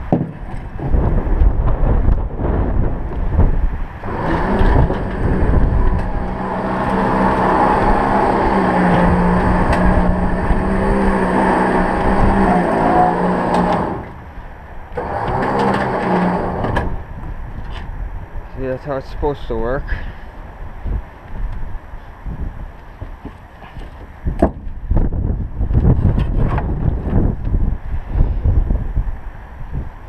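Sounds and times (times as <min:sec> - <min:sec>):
electric winch motor whining: 0:04.0 - 0:17.1.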